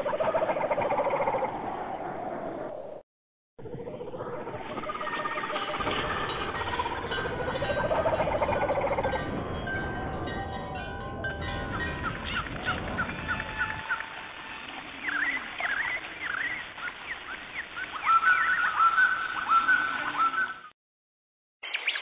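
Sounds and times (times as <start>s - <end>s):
low rumble: 3.6s - 14.0s
steady ringing tones: 5.6s - 12.2s
birds chirping: 11.5s - 14.0s, 14.9s - 20.7s, 21.6s - 22.0s.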